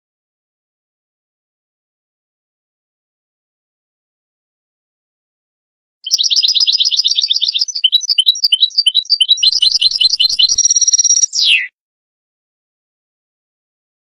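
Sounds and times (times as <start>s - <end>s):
goldfinch singing: 6.0s - 11.7s.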